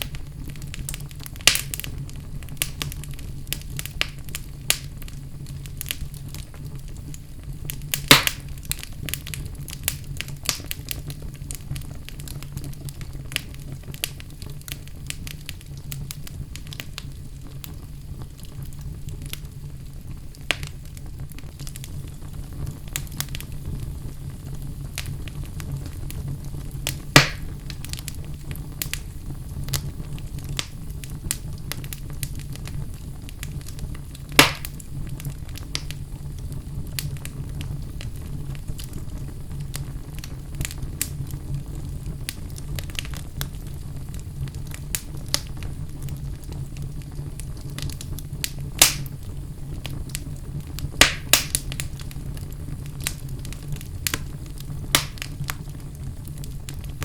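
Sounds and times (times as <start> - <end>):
fire popping: 0.0 - 57.0
fireplace fire crackling: 0.0 - 57.0.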